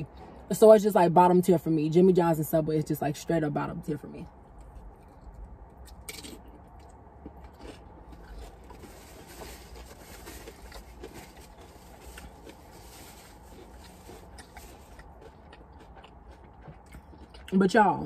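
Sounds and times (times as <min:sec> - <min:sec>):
person chewing with mouth clicks: 0:04.6 - 0:08.5, 0:13.6 - 0:17.6.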